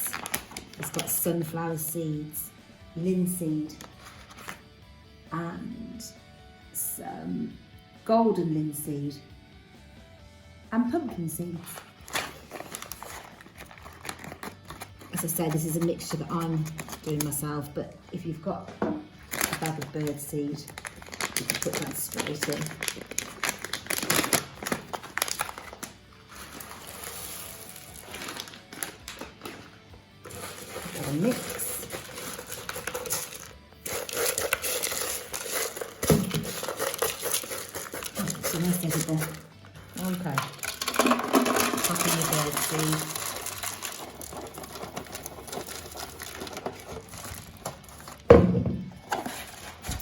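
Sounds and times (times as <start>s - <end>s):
music: 0.0s - 50.0s
bird seed rattling into plastic bottle: 30.3s - 39.4s, 40.0s - 48.0s.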